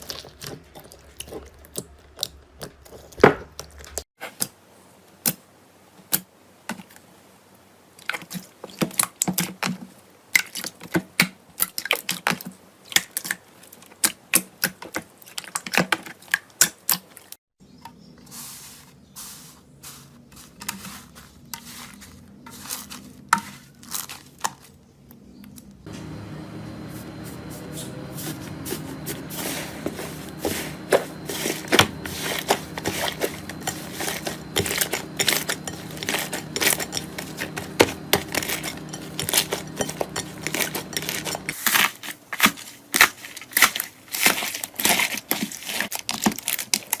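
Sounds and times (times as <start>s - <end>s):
low hum: 25.9s - 41.6s.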